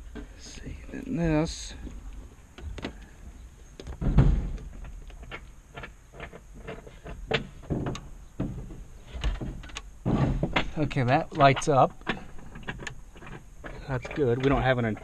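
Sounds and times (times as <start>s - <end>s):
heavy thump: 4.0s - 4.9s, 7.3s - 11.0s.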